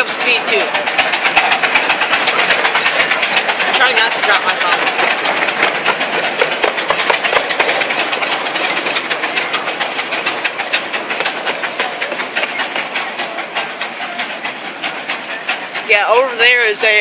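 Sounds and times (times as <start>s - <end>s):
train clattering over rails: 0.0s - 17.0s.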